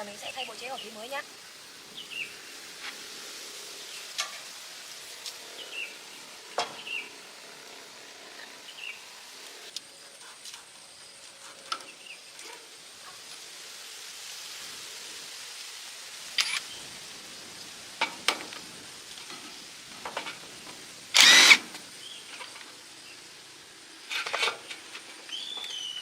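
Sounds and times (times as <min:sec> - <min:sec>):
background hiss: 0:00.0 - 0:26.0
metal parts and tools clicking: 0:16.4 - 0:16.6.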